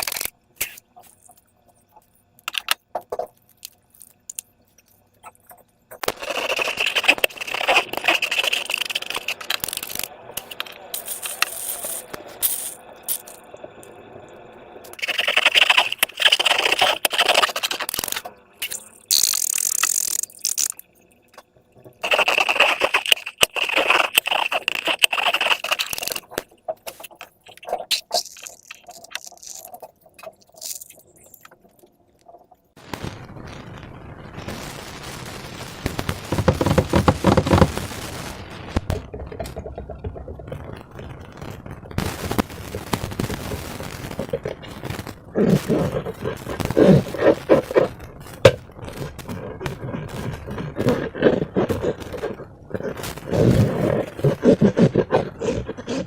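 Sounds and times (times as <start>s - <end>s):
slime crackling and clicking: 22.0s - 31.7s.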